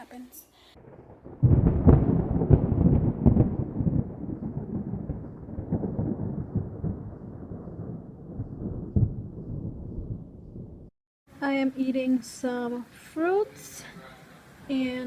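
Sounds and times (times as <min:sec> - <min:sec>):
thunder rumbling: 0:00.7 - 0:11.0.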